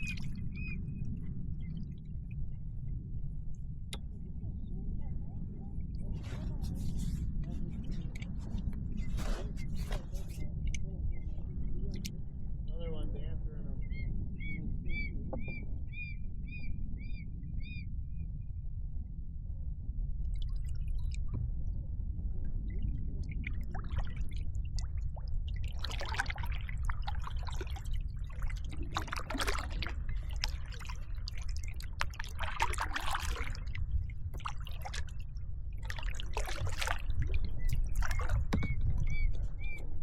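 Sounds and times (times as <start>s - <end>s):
low rumble: 0.0s - 40.0s
kayak paddle splashing water: 25.5s - 39.3s.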